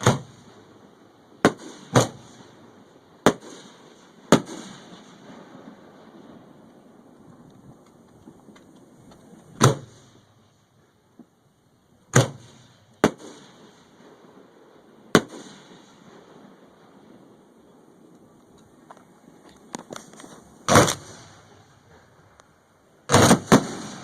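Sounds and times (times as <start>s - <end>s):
fireworks bangs with rumble: 1.4s - 2.6s, 3.2s - 6.6s, 12.1s - 14.2s, 15.1s - 16.6s, 23.1s - 24.0s.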